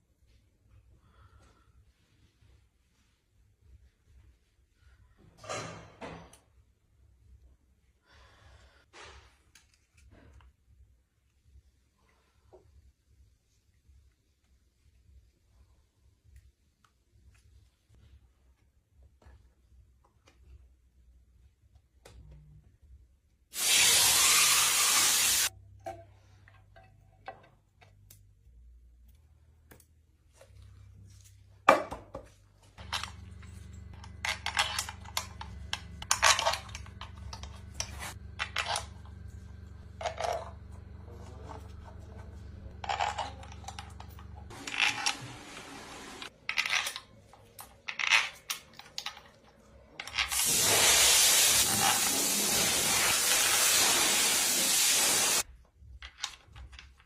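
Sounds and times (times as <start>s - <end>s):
loud hissing bursts: 23.6s - 25.5s, 50.3s - 55.4s
low steady hum: 25.6s - 45.1s.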